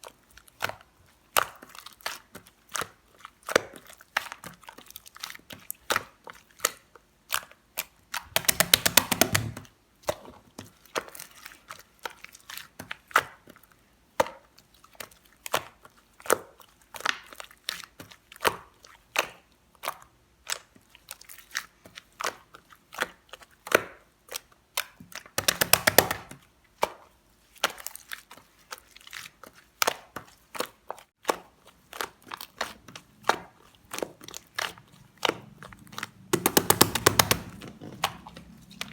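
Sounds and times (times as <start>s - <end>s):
slime squished by hand: 20.5s - 38.9s.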